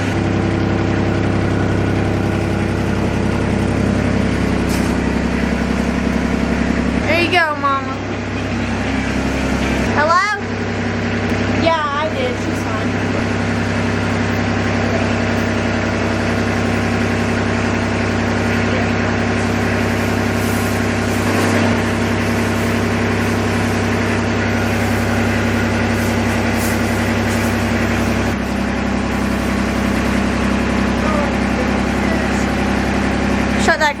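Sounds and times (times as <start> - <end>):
engine idling: 0.0 - 34.0.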